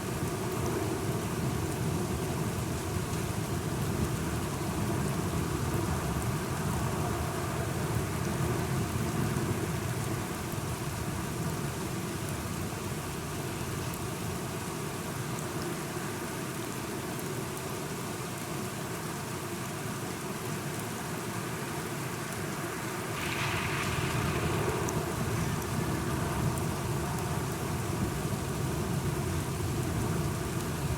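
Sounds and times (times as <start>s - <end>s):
steady rainfall: 0.0s - 30.9s
low rumble: 23.2s - 28.9s.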